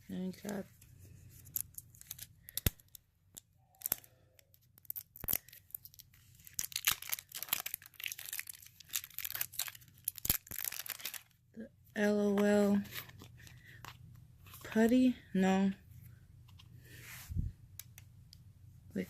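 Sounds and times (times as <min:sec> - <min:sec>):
plastic packaging crinkling: 0:04.8 - 0:11.4.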